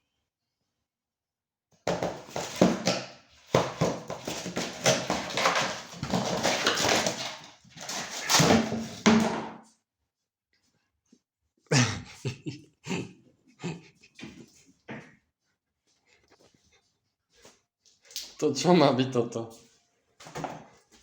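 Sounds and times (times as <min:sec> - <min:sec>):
cats growling and hissing: 0:11.7 - 0:14.6.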